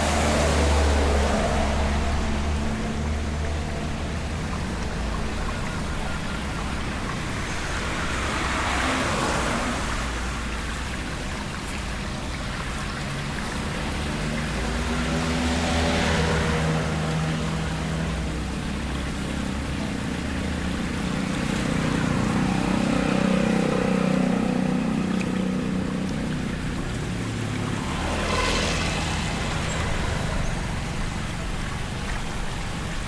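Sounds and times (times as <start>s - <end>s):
water splashing: 0.0s - 33.0s
vehicle engine running: 16.6s - 33.0s.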